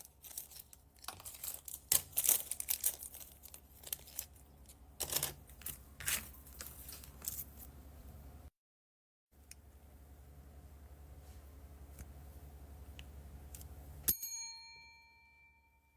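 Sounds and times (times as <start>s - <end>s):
plastic bags crinkling: 0.0s - 7.7s.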